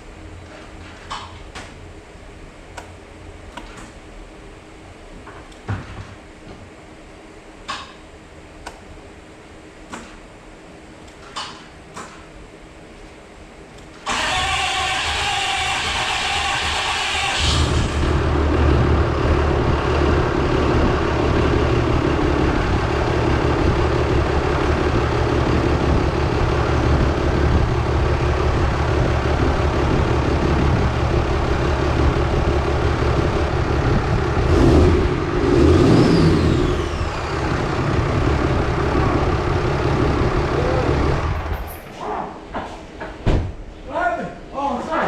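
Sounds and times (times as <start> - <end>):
diesel engine idling: 14.1 - 41.8.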